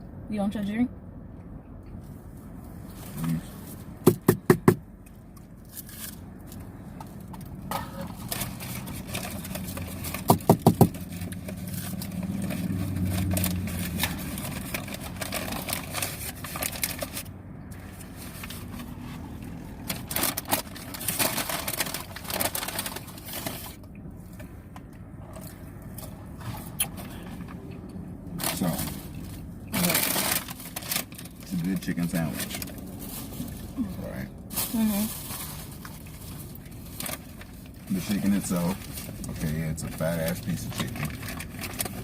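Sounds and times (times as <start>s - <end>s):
fast-food packaging crinkling: 8.0s - 17.3s, 19.8s - 23.8s, 28.4s - 33.6s, 34.6s - 42.0s.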